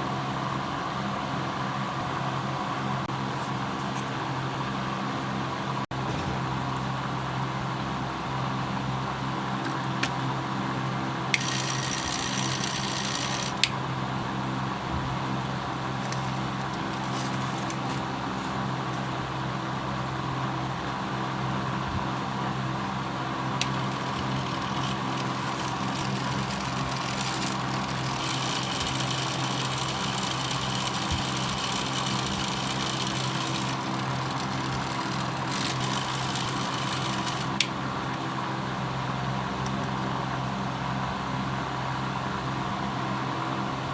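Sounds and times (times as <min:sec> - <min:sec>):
small electric motor humming: 0:11.4 - 0:13.8, 0:16.0 - 0:18.1, 0:23.6 - 0:38.3.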